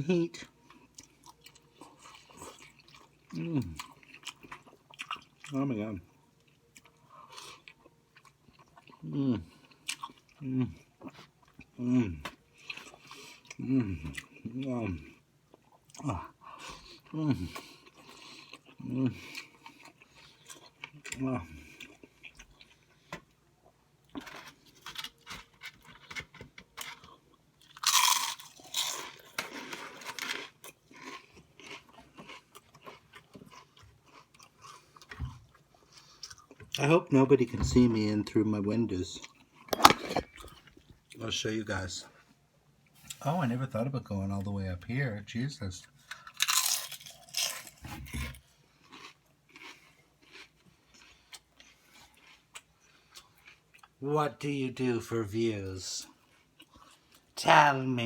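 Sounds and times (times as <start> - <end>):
crunching and chewing crisp food: 0.1 - 37.5, 38.1 - 41.3, 45.4 - 57.4
crunching crunchy food: 24.1 - 34.8, 39.7 - 40.8, 46.1 - 47.8, 48.8 - 54.0.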